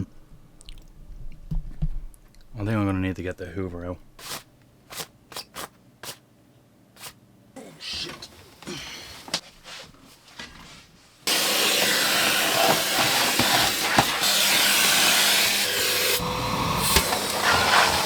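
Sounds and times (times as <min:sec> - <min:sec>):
vacuum cleaner running: 0:11.3 - 0:18.0.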